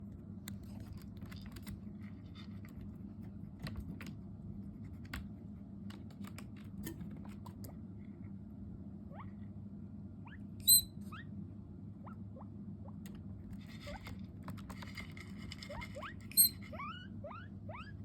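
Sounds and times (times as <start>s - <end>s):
guinea pig clicks and scratching: 0.0s - 7.8s, 12.9s - 18.0s
steady low hum: 0.0s - 18.0s.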